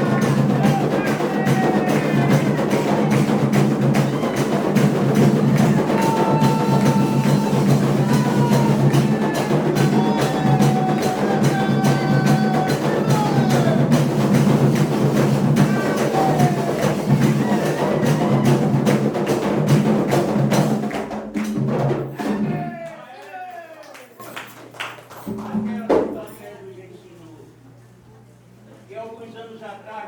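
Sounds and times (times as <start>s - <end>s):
rapid drumming: 0.0s - 22.8s.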